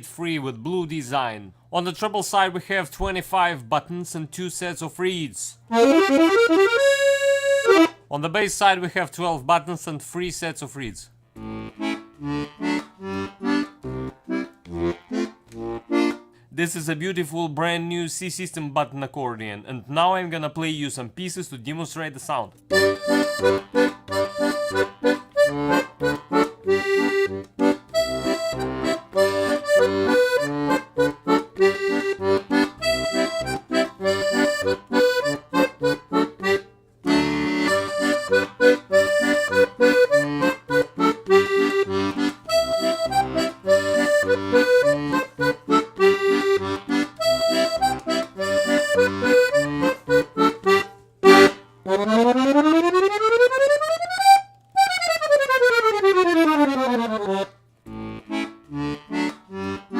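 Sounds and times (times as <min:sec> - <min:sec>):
button accordion playing a tune: 0:05.6 - 0:08.1, 0:11.3 - 0:16.8, 0:22.6 - 0:59.9.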